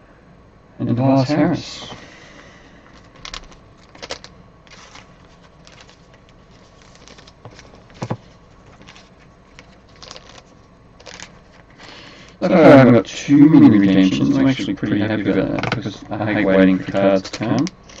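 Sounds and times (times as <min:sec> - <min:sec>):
cards and plastic sleeves rustling: 0:02.8 - 0:12.4, 0:14.2 - 0:18.0.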